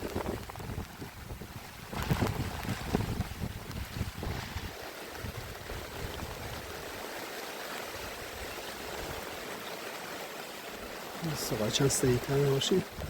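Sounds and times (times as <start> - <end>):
wind buffeting microphone: 0.0 - 7.1
heavy rain and running water: 0.0 - 13.0.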